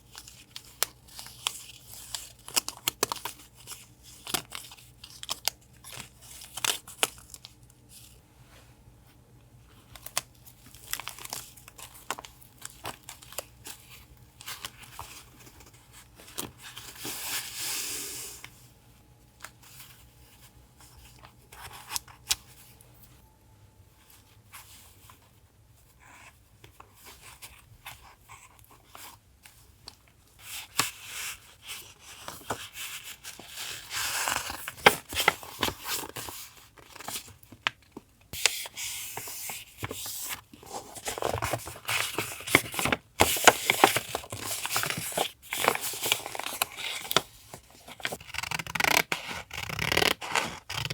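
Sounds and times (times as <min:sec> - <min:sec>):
paper tearing: 0:48.1 - 0:50.9.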